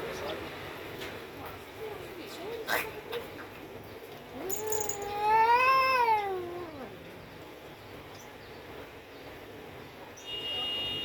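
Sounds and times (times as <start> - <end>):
cat yowling: 4.4 - 7.0.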